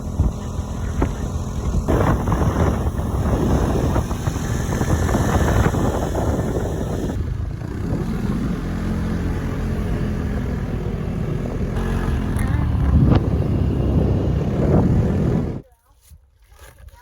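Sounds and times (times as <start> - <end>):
scooter engine running: 0.0 - 15.6.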